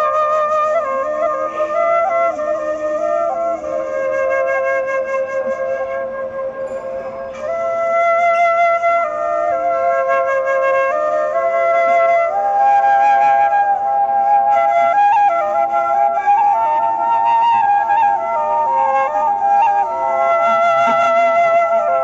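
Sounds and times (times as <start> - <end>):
bamboo flute playing: 0.0 - 22.0
low held drone note: 1.3 - 2.8, 6.0 - 9.2.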